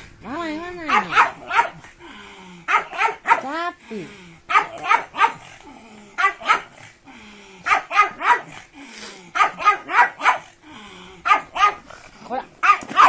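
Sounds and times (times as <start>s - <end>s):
dog barking excitedly: 0.8s - 1.9s, 2.6s - 3.6s, 4.5s - 5.5s, 6.2s - 6.8s, 7.6s - 8.7s, 9.3s - 10.5s, 11.2s - 11.9s, 12.6s - 13.0s.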